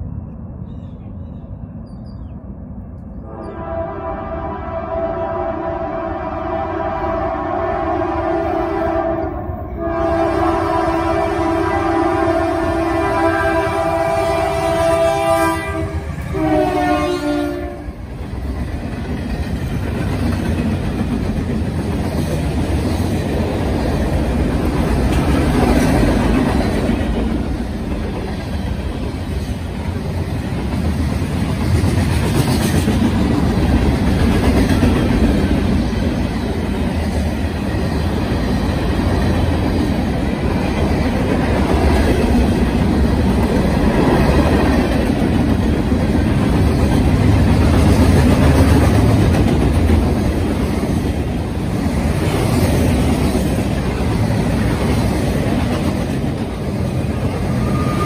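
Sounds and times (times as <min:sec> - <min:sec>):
train cars rumbling and clacking: 0:00.0 - 0:58.0
train air horn: 0:03.2 - 0:18.0, 0:57.4 - 0:58.0.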